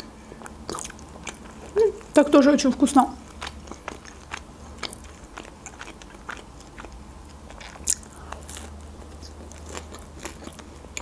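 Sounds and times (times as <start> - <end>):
woman chewing: 0.4 - 2.2, 3.2 - 11.0.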